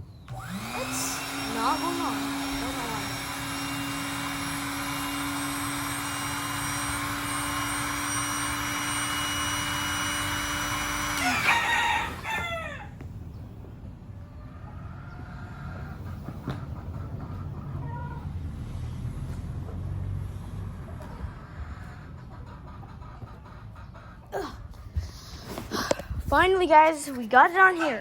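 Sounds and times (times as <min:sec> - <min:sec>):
electric air pump humming: 0:00.2 - 0:13.0.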